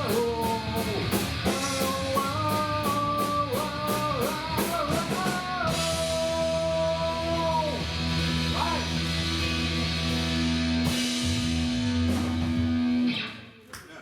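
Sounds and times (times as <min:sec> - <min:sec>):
electric guitars ringing: 0:05.4 - 0:13.5.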